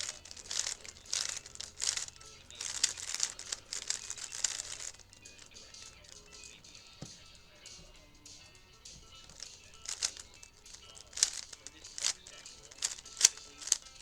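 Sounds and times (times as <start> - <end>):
puzzle cube clicking turns: 0.0 - 14.0.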